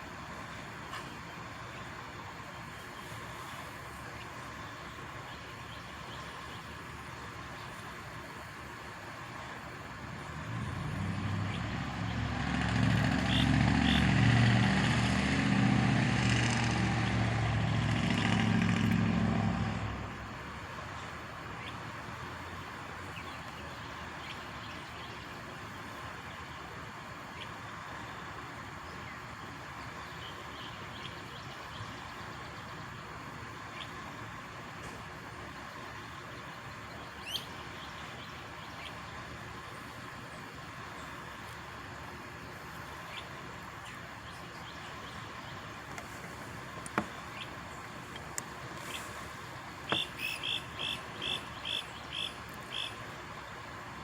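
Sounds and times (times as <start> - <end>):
truck engine drone: 0.0 - 24.2.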